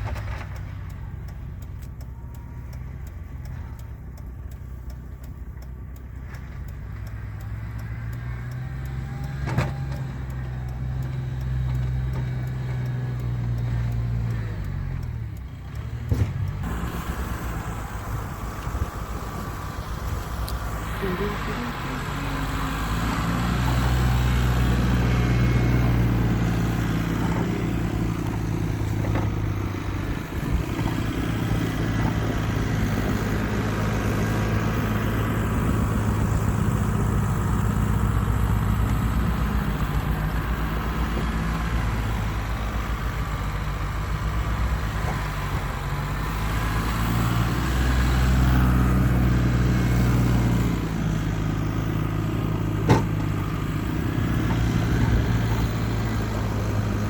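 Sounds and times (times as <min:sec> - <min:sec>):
snow-clearing machine engine droning: 0:16.6 - 0:57.0.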